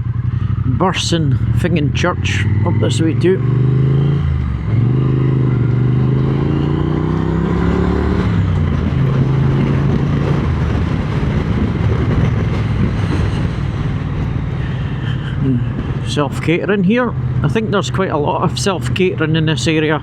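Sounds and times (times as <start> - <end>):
motorcycle engine revving: 0.0 - 20.0
wind on microphone: 2.5 - 16.1.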